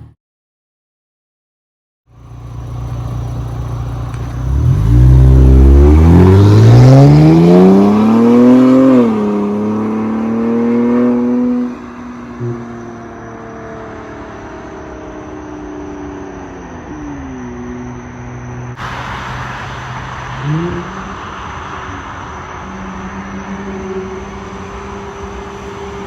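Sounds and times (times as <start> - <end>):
loud engine exhaust revving: 2.7 - 12.6.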